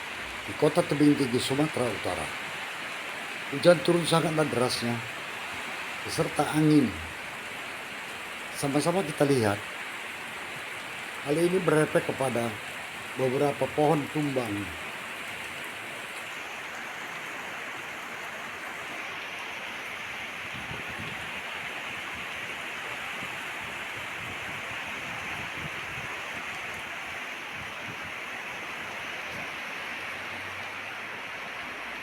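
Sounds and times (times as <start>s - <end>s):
heavy rain pouring: 0.0s - 32.0s
wind gusts rumbling: 20.5s - 22.4s, 23.1s - 28.2s.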